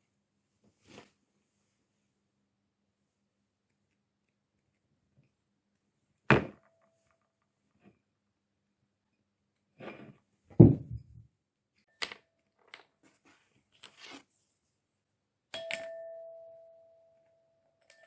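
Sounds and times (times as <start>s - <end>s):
heavy thump: 10.5s - 11.2s
clear ringing tone: 15.6s - 18.0s.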